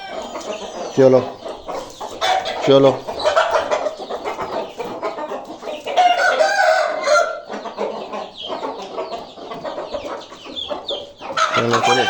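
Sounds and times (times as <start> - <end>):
rooster crowing: 0.0 - 0.5, 6.0 - 7.5, 11.4 - 12.0
chickens clucking and squawking: 0.0 - 12.0.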